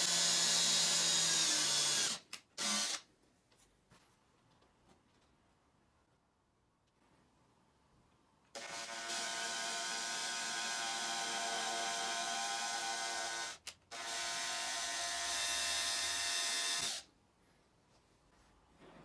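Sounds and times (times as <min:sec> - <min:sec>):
cordless drill boring through steel: 0:00.0 - 0:03.0, 0:08.6 - 0:17.1.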